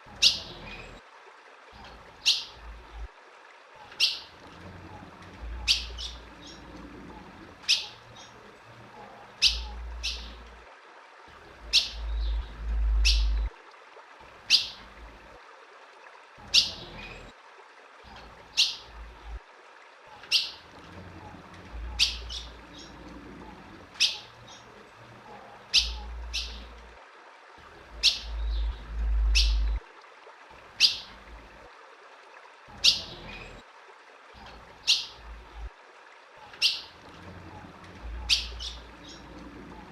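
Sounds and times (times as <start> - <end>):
bird chip calls: 3.8 - 4.4, 5.6 - 6.6, 7.6 - 8.4, 9.4 - 10.4, 11.7 - 13.5, 14.5 - 14.8, 20.1 - 20.6, 21.9 - 23.0, 24.0 - 24.7, 25.7 - 26.8, 28.0 - 29.8, 30.8 - 31.1, 34.4 - 35.2, 36.4 - 37.0, 38.1 - 39.3
low rumble: 11.9 - 13.5, 28.3 - 29.8.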